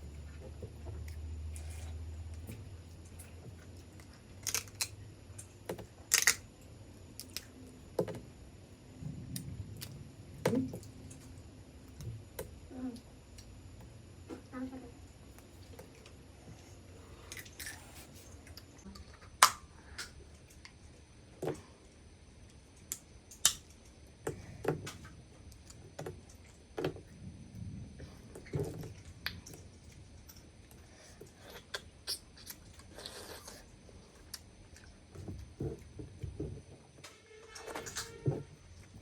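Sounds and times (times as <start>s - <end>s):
shell clicks and cracks: 6.1s - 6.4s
person chewing crab: 31.2s - 35.1s.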